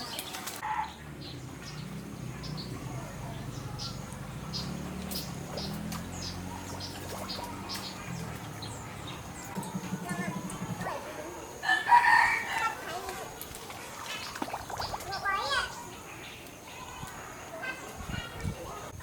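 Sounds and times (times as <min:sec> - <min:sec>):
small bird chirping: 0:00.2 - 0:11.0, 0:14.1 - 0:17.1.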